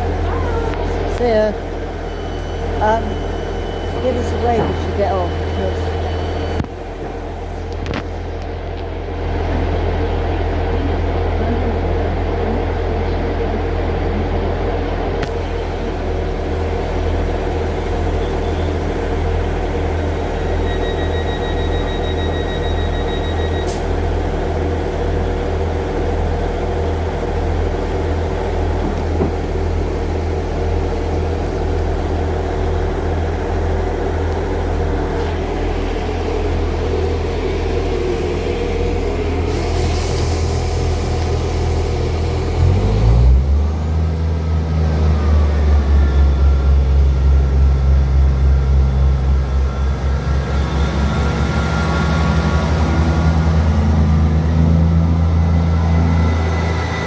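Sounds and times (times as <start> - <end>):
train engine idling: 0.0 - 57.0
high beeping tone: 1.2 - 6.6.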